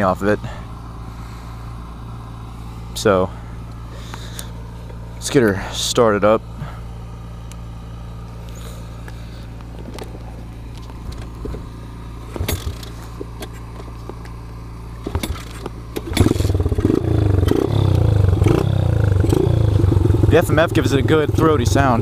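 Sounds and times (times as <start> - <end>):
low hum: 0.0 - 22.0
motorbike engine running loud: 6.5 - 22.0.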